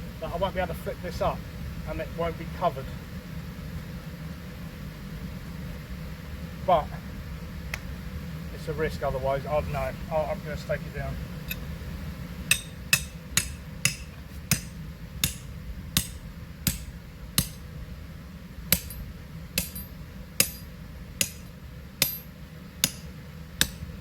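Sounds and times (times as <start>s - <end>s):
hammer striking metal stake: 12.5s - 17.7s, 18.7s - 23.9s.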